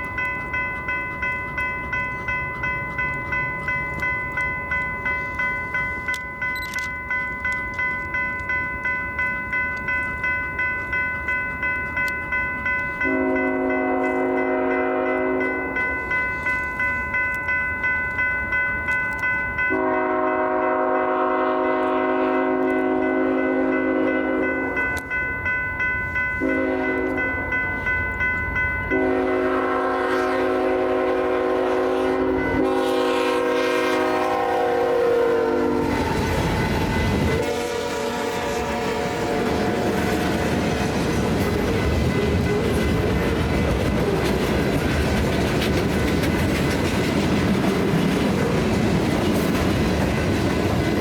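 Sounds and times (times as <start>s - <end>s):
crossing bell ringing: 0.0s - 51.0s
train rolling rumble: 0.0s - 51.0s
locomotive air horn blasts: 13.0s - 15.6s, 19.7s - 24.6s, 26.4s - 27.3s, 28.9s - 36.6s, 37.3s - 40.1s.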